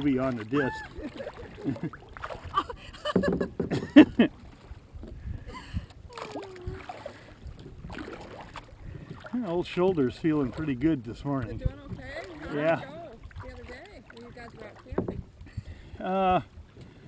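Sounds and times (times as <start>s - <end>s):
water splashing around kayaks: 0.0s - 17.0s.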